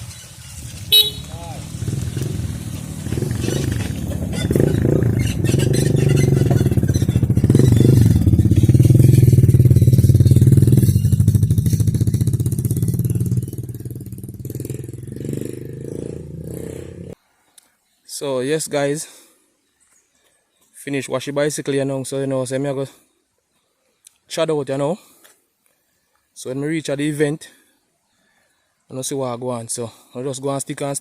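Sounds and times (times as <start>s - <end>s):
motorcycle engine running: 0.1s - 17.2s.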